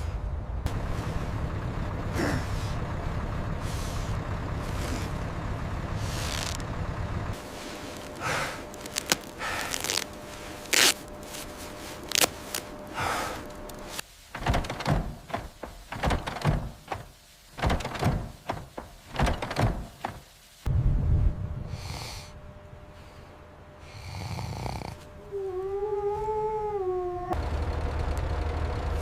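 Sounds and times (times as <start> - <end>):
irregular knocks and clunks: 14.3 - 20.3.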